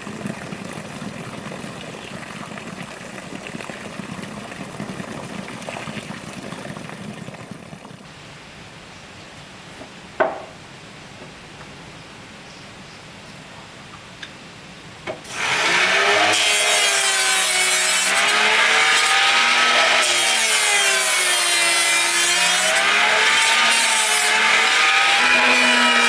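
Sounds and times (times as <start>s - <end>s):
power tool cutting wood: 15.2s - 26.0s.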